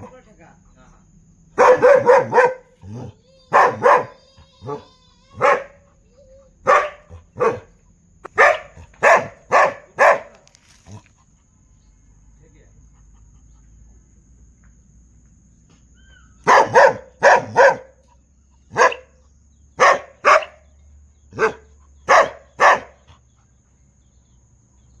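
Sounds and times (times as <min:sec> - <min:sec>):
dog barking: 0:01.6 - 0:06.0, 0:06.6 - 0:11.1, 0:16.4 - 0:18.0, 0:18.7 - 0:19.2, 0:19.8 - 0:20.7, 0:21.3 - 0:23.2.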